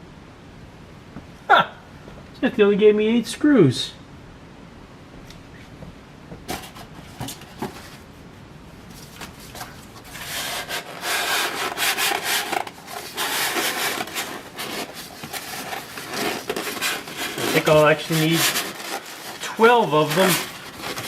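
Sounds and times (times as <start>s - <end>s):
packaging scratching and scraping: 6.5s - 8.1s, 8.9s - 21.0s.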